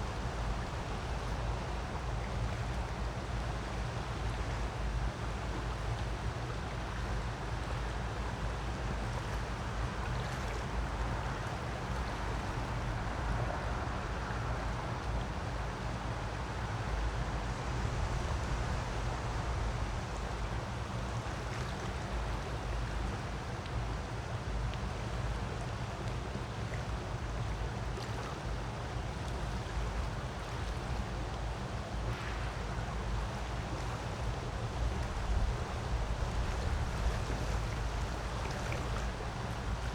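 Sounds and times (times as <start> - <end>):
creek water rushing: 24.0 - 39.9.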